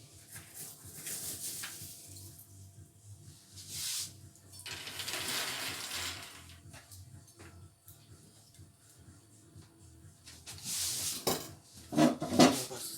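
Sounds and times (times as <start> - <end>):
nuts pouring into mixture: 4.6 - 6.6.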